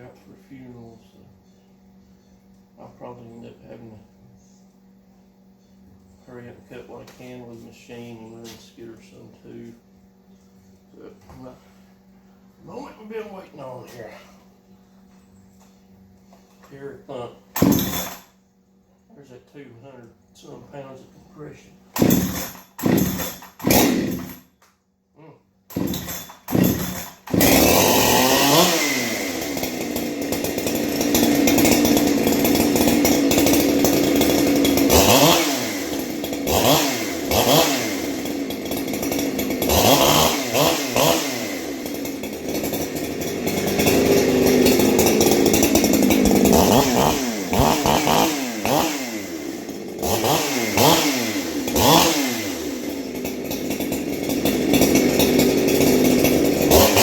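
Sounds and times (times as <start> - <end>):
chainsaw idling and revving: 17.0 - 18.4, 21.8 - 24.5, 25.7 - 57.0.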